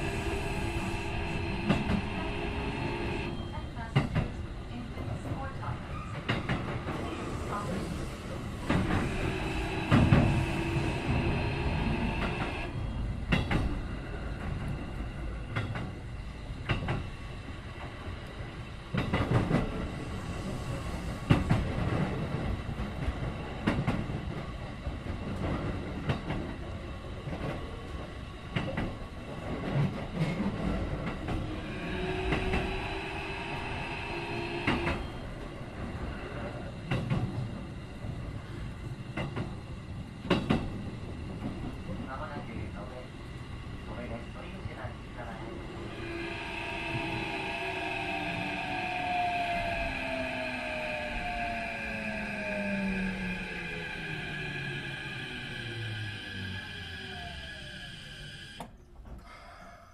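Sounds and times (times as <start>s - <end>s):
train traction motor whine: 0.0s - 4.9s, 7.1s - 15.7s, 29.7s - 38.6s, 43.6s - 58.8s
train rumble: 0.0s - 59.5s.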